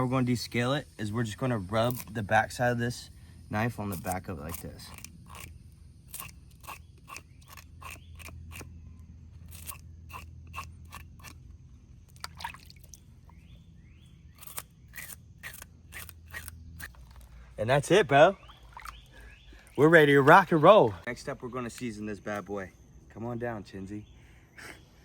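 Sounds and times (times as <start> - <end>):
knife scraping fish scales: 1.8 - 2.2, 3.9 - 8.8, 9.4 - 11.4, 14.4 - 17.3.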